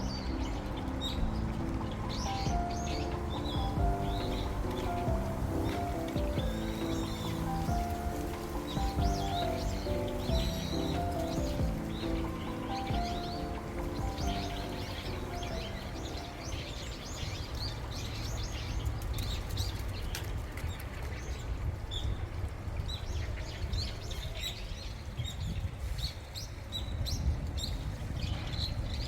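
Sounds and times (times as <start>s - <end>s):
steady low rumble: 0.0s - 19.1s
small birds chirping: 0.0s - 22.2s.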